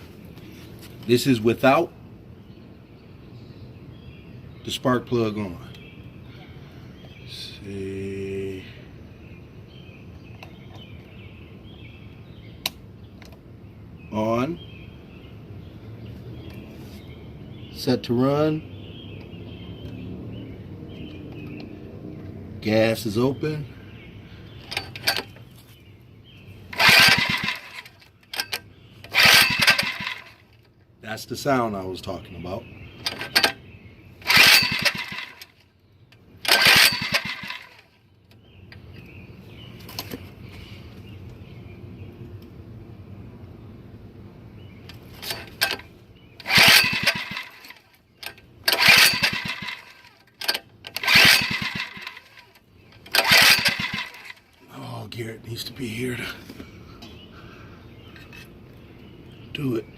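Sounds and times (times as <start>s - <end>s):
small engine cranking: 24.6s - 25.4s, 26.7s - 30.5s, 34.2s - 35.6s, 36.4s - 37.9s, 45.2s - 54.6s.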